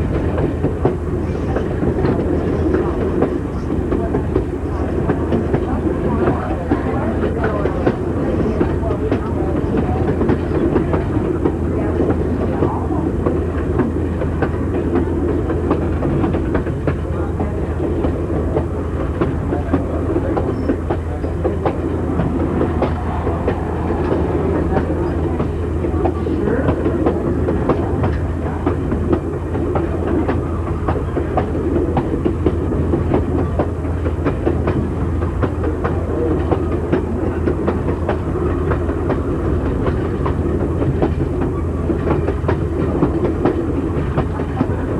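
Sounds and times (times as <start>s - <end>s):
clickety-clack of rail joints: 0.0s - 44.9s
wheels rumbling on rail: 0.0s - 44.9s.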